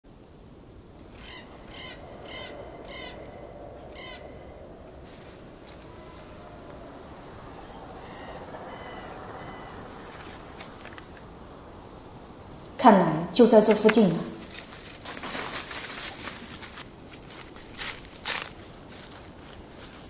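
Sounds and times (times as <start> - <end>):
bird calling: 1.1 - 12.3
outdoor hiss: 3.4 - 20.0.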